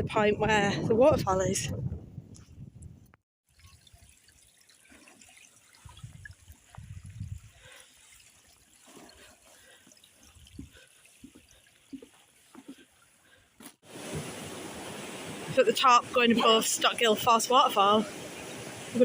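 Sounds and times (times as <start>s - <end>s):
stream trickling: 3.4s - 19.0s.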